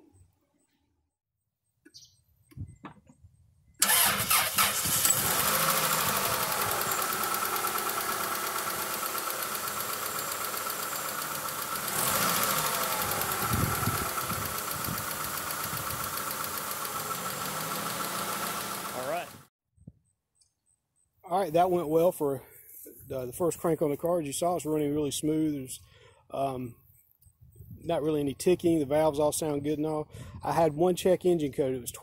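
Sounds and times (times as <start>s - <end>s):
car engine starting and idling: 3.8s - 19.5s.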